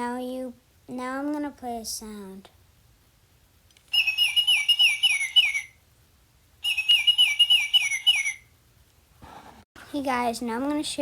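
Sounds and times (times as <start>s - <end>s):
recorded bird call whistles: 3.9s - 5.8s, 6.6s - 8.6s.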